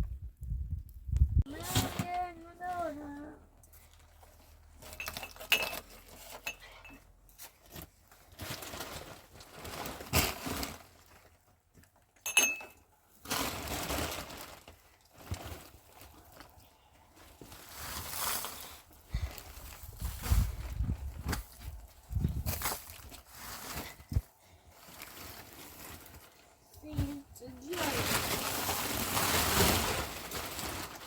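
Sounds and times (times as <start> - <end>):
rustling and scraping: 1.5 - 12.1, 13.1 - 31.0
sharp ringing clinks: 12.3 - 12.8.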